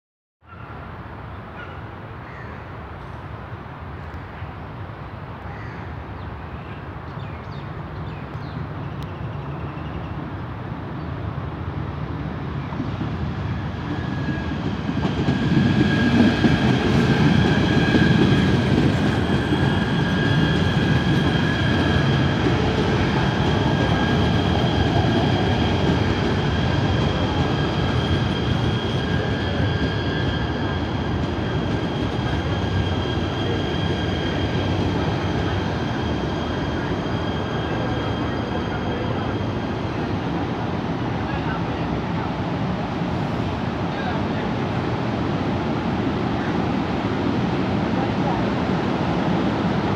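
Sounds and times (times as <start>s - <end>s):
wheels rumbling on rail: 0.6s - 49.9s
high-pitched train tones: 13.1s - 47.0s.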